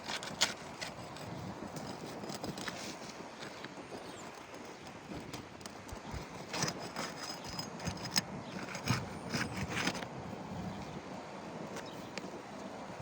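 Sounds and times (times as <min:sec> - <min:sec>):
hand tools on roof shingles: 0:00.0 - 0:10.0.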